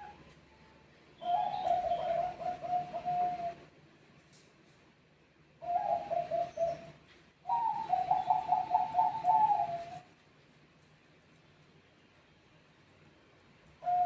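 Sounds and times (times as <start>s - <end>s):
doves cooing: 1.2s - 3.7s, 5.6s - 10.1s, 13.8s - 14.0s.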